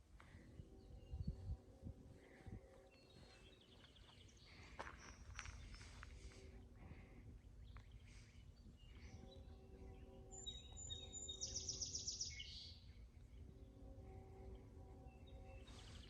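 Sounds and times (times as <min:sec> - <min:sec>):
distant locomotive horn: 0:00.0 - 0:03.6, 0:08.0 - 0:16.0
songbird whistling and trilling: 0:10.3 - 0:12.9.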